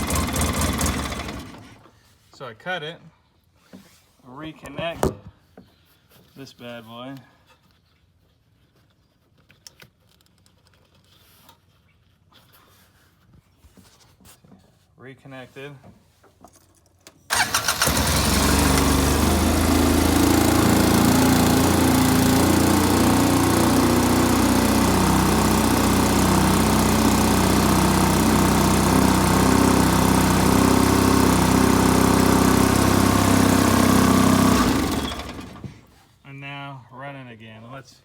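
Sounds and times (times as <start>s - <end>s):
engine idling: 0.0s - 1.7s, 17.3s - 35.6s
engine cranking and starting: 0.0s - 1.9s, 17.3s - 35.9s.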